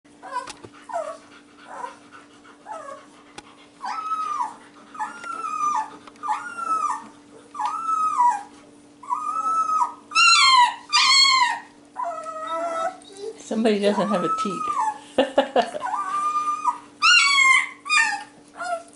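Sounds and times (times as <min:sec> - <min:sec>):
steady low hum: 0:00.1 - 0:18.9
puppy whimpering and crying: 0:00.2 - 0:02.0, 0:02.6 - 0:03.1, 0:03.8 - 0:18.9.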